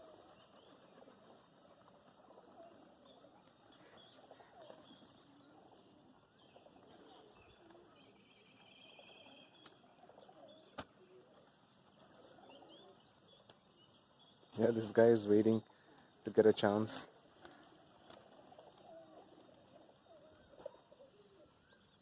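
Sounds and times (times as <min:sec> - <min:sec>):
birds chirping and calling: 0:00.0 - 0:22.0
bird trill: 0:02.6 - 0:10.8.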